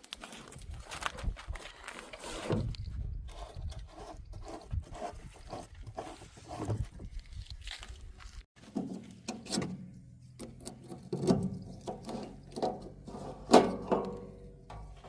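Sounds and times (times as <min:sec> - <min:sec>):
metallic clanks and knocks: 0:08.7 - 0:15.0.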